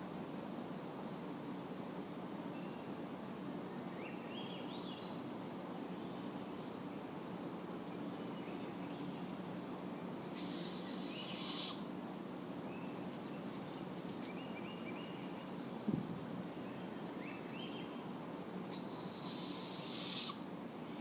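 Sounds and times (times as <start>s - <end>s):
owl raspy screech: 10.4s - 12.0s, 18.7s - 20.5s.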